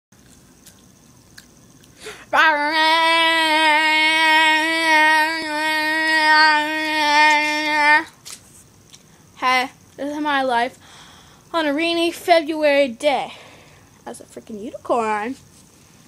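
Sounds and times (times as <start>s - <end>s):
person singing long note: 2.3s - 8.1s.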